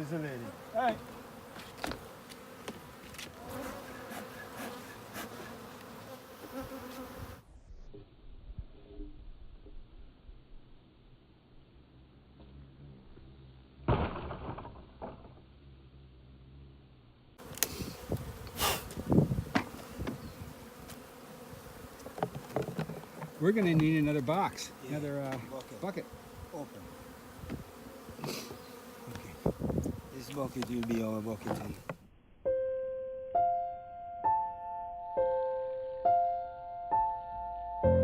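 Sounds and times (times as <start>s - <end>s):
bees buzzing: 0.0s - 7.6s, 17.4s - 32.0s
sharp knocks and scrapes: 22.0s - 23.9s.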